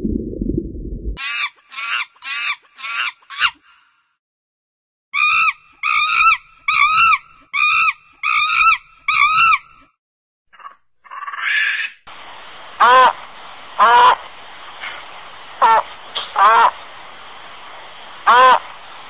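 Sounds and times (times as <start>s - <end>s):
monkey calling: 1.2s - 3.8s, 5.2s - 9.8s, 10.5s - 12.0s, 16.4s - 16.7s.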